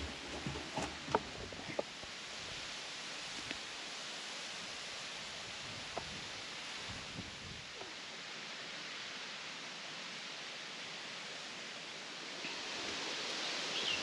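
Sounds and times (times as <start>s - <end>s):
faint rustle: 0.0s - 4.2s
outdoor background hiss: 0.0s - 14.0s.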